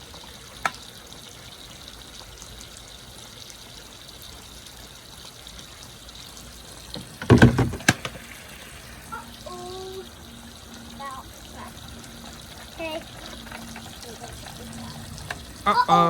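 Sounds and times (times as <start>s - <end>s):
water trickling down a slide: 0.0s - 16.0s
toy truck landing bump: 7.0s - 8.3s.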